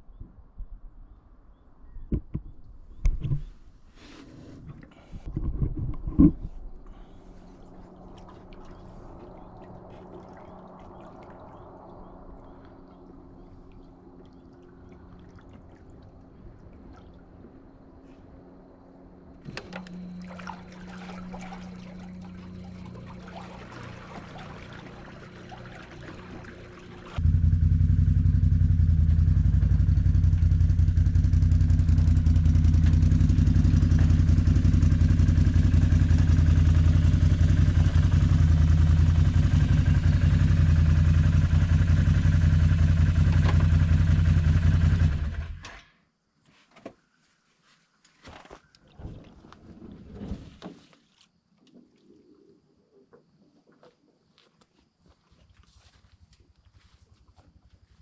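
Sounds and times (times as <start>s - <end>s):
engine running: 18.2s - 45.8s.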